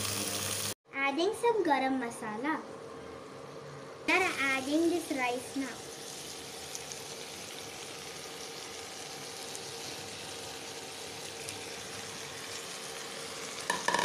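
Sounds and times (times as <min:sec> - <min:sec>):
vegetables sizzling in oil: 0:00.0 - 0:00.8, 0:04.1 - 0:14.0.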